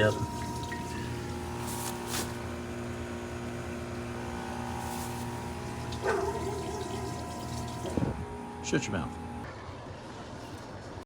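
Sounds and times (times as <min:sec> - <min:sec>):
water running down drain: 0:00.0 - 0:01.6, 0:05.2 - 0:08.1
wavering whine: 0:00.0 - 0:09.5
machine hum: 0:00.0 - 0:09.7.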